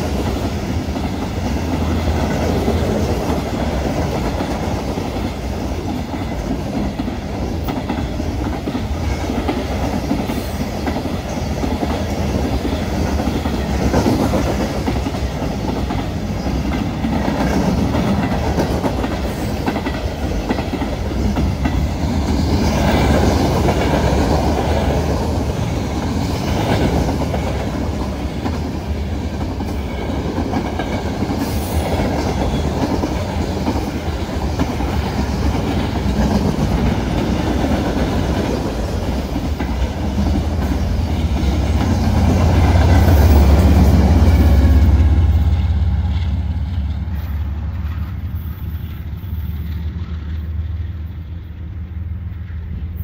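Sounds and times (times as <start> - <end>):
train wheels clattering over joints: 0.0 - 51.3
deep train rumble: 0.0 - 53.0.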